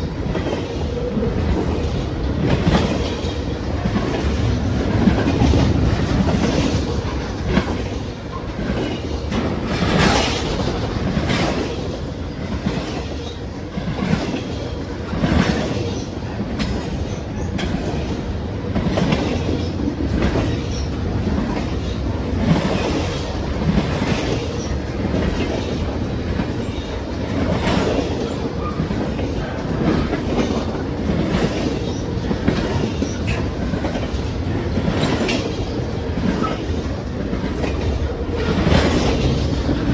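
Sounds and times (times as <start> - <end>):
freight train wheels clacking: 0.0 - 39.9.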